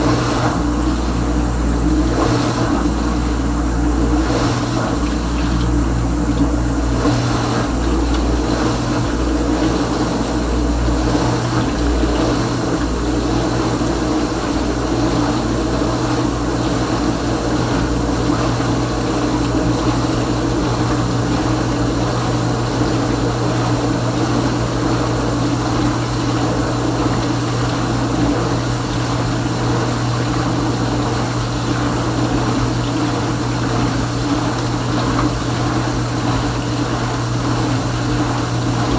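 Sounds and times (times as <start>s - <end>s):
water rushing: 0.0s - 22.8s
dishwasher pump humming: 0.0s - 38.9s.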